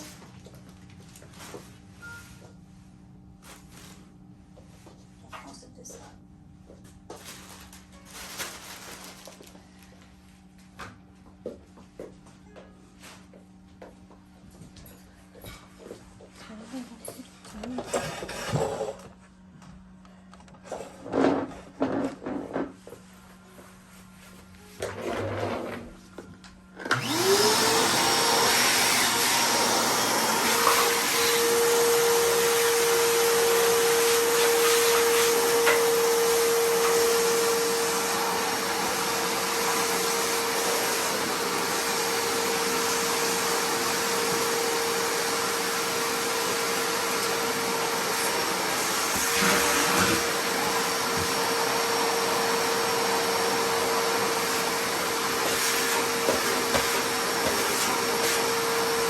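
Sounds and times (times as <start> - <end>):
vacuum cleaner motor whining: 24.8 - 59.0.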